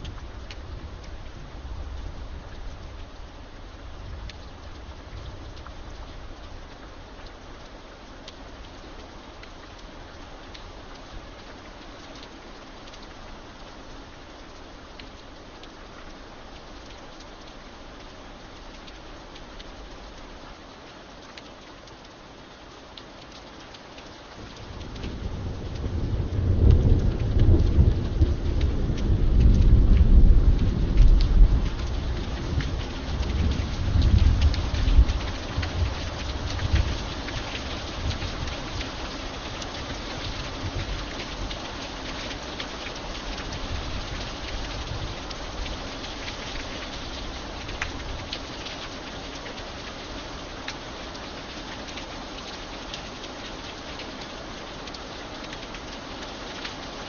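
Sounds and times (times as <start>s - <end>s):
steady rain: 0.0s - 57.0s
thunder rumbling: 24.4s - 37.0s.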